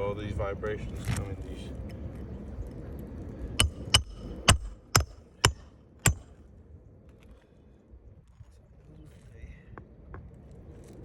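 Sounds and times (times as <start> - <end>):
low rumble of wind: 0.0 - 11.0
hammer blows on metal: 3.6 - 6.3.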